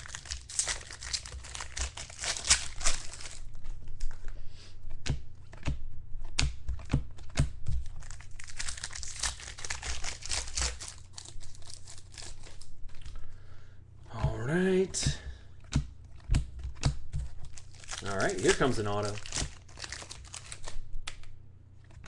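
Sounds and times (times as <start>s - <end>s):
card pack wrapper tearing: 0.0s - 4.1s, 7.2s - 13.2s, 16.2s - 21.2s.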